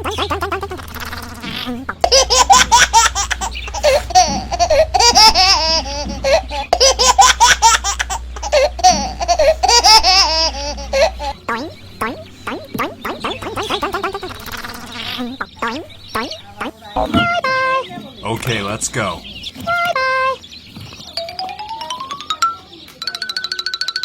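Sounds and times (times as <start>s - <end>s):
high-pitched giggling laughter: 0.0s - 17.9s
low hum: 0.0s - 20.0s.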